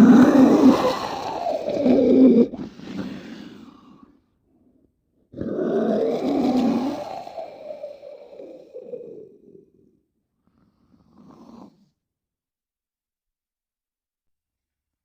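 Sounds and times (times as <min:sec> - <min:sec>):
deep rough monster growl: 0:00.0 - 0:04.0.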